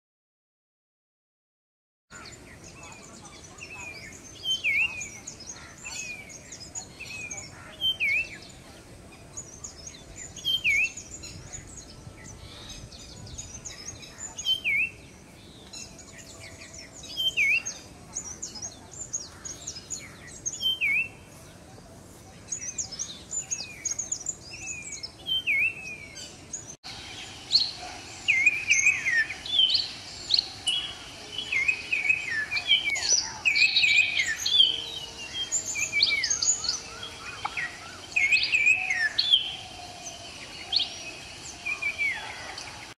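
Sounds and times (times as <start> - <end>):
higher bird chirps: 22.5 - 43.0.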